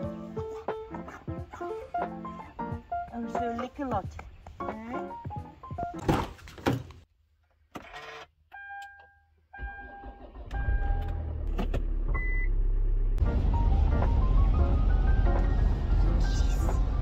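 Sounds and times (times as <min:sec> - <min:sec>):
car engine starting and idling: 0:09.5 - 0:17.0
car door shutting: 0:09.7 - 0:12.5.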